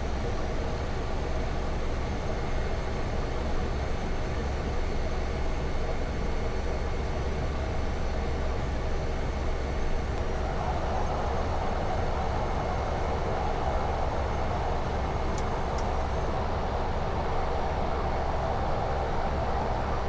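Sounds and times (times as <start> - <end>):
turboprop engine cabin hum: 7.0 - 18.3.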